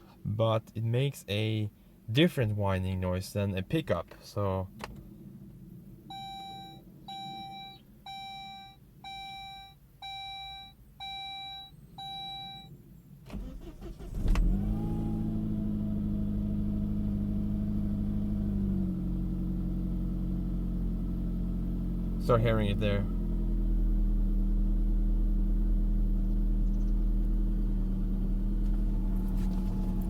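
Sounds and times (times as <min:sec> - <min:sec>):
dashboard warning chime: 0:06.1 - 0:12.7
car engine cranking and idling: 0:12.8 - 0:30.0
engine whine: 0:12.8 - 0:30.0.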